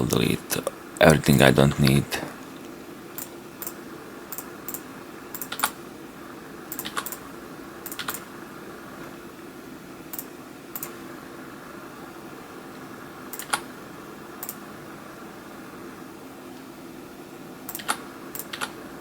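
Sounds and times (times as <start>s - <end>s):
steady low hum: 0.0s - 5.4s
mouse and keyboard clicks: 3.2s - 5.8s, 6.7s - 7.2s, 7.9s - 8.2s, 17.7s - 18.8s.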